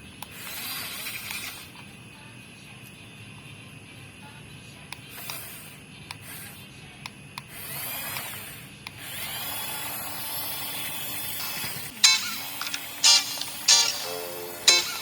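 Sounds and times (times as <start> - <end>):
electric toy motor whirring: 0.2 - 1.9, 5.0 - 6.7, 7.4 - 15.0.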